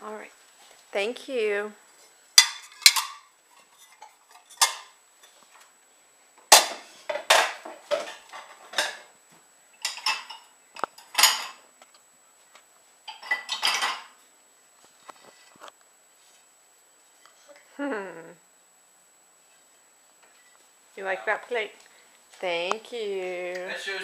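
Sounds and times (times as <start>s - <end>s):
dishes and cutlery clinking: 2.4s - 5.4s, 6.5s - 9.1s, 9.8s - 11.6s, 13.1s - 14.2s.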